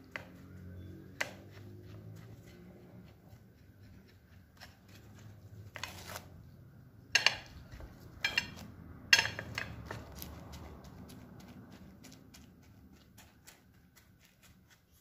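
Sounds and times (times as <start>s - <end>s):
kitchen utensils clinking: 7.2s - 9.9s.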